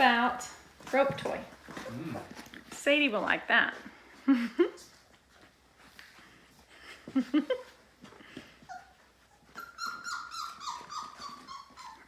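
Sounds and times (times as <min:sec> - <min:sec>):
puppies growling: 0:01.5 - 0:02.7, 0:08.2 - 0:12.0
puppies whining: 0:01.6 - 0:02.5, 0:08.2 - 0:12.0.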